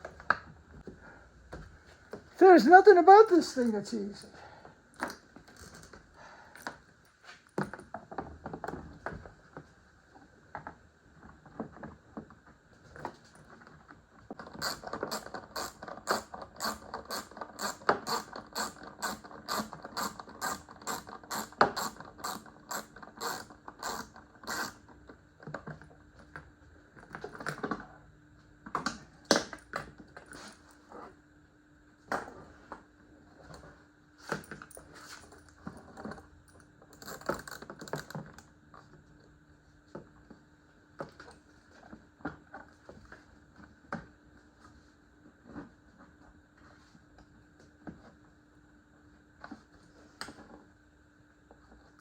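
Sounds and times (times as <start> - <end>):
ratchet wrench clicking: 14.6 - 24.7.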